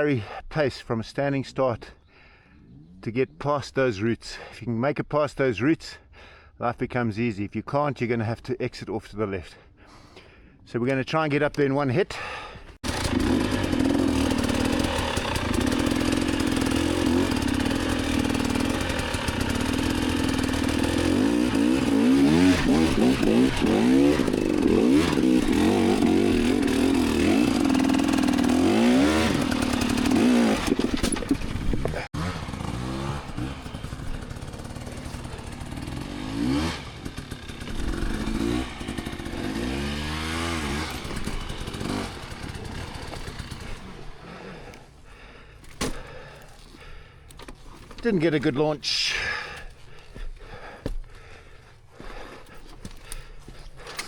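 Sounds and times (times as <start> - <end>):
dirt bike engine revving: 12.8 - 47.1, 48.0 - 54.0.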